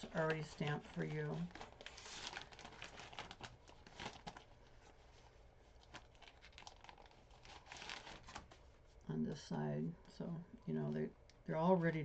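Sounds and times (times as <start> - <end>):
paper cards rustling: 0.0 - 8.7.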